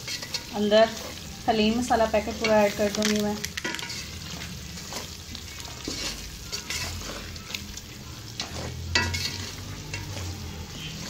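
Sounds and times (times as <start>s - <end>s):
spatula scraping a metal pot: 0.0s - 1.3s, 3.6s - 7.6s, 8.2s - 11.0s
meat sizzling in hot oil: 0.0s - 11.0s.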